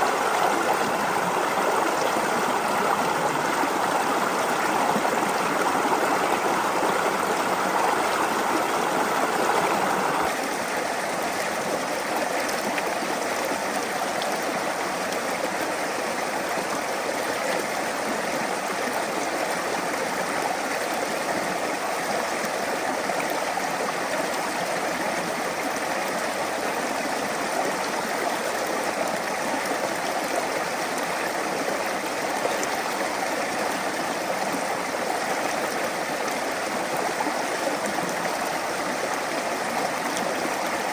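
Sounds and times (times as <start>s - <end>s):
brook flowing over stones: 0.0s - 40.9s.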